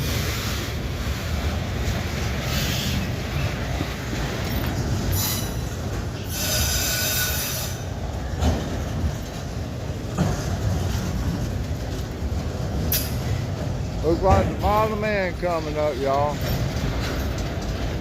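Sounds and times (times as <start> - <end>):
train wheels rumbling on rail: 0.0 - 18.0
high wheel squeal: 5.1 - 7.9.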